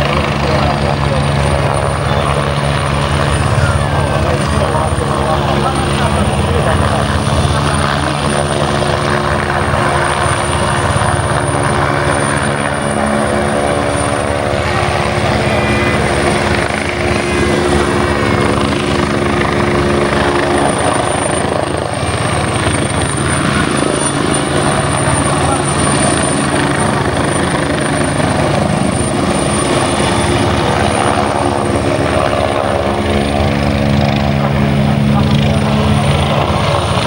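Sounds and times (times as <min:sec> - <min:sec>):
helicopter hovering: 0:00.0 - 0:37.0
high whine: 0:09.1 - 0:27.8.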